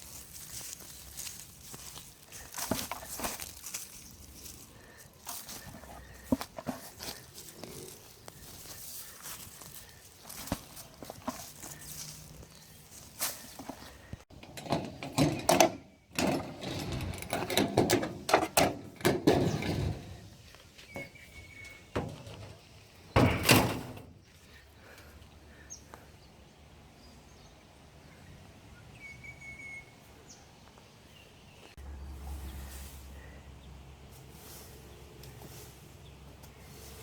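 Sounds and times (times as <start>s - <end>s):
clattering knocks and thuds: 14.3s - 20.3s, 21.9s - 24.2s.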